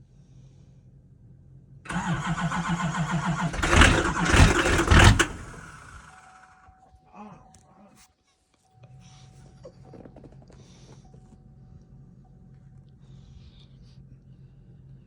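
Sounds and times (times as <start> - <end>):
starter cranking: 1.9 - 6.2
diesel engine firing unevenly: 1.9 - 6.5.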